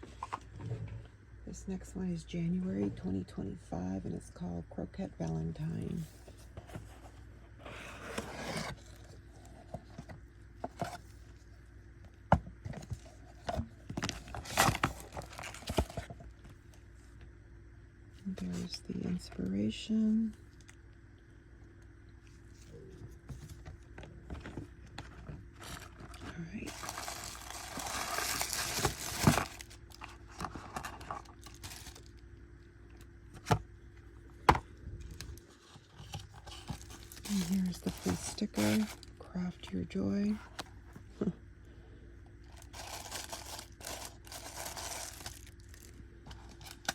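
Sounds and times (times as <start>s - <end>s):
paper or plastic rustling: 12.8s - 16.2s, 24.4s - 32.2s, 35.1s - 39.1s, 42.5s - 46.9s
packaging crinkling and tearing: 14.0s - 16.1s, 25.5s - 32.2s, 36.0s - 39.2s, 42.4s - 46.9s.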